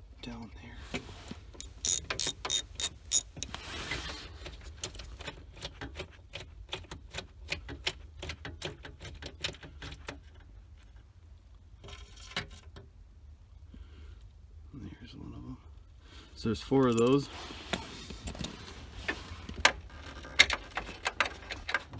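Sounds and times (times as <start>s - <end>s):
socket ratchet clicking: 1.6s - 3.6s.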